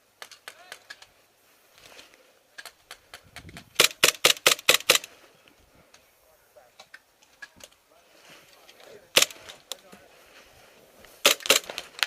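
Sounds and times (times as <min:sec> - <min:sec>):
airsoft pistol shots: 0:03.8 - 0:05.1.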